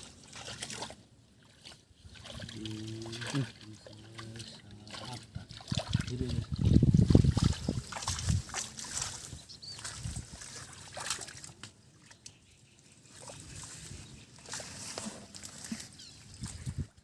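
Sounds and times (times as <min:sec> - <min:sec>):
muddy water sloshing: 0:00.0 - 0:17.0
small water splashes: 0:00.0 - 0:17.0.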